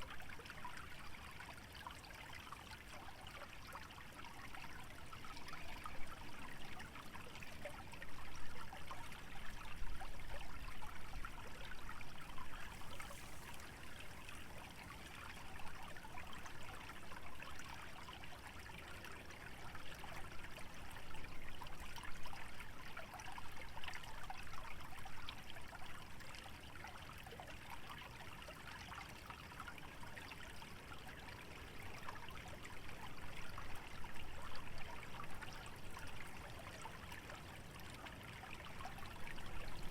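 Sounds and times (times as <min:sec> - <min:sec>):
stream babbling: 0:00.1 - 0:39.9.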